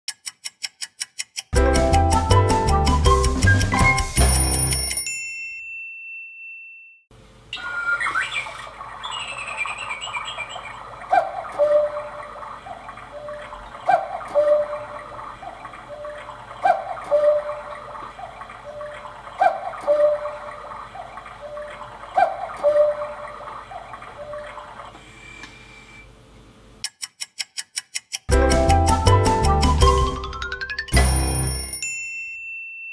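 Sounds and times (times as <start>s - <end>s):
electronic cuckoo call: 7.5s - 12.4s, 14.3s - 15.1s, 17.0s - 17.9s, 22.6s - 23.4s
faint background chirping: 7.5s - 16.2s.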